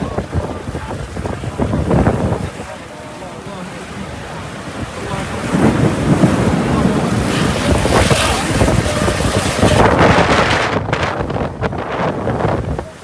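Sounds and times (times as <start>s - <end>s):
rainstorm rushing: 0.0s - 13.0s
wind buffeting microphone: 0.0s - 13.0s.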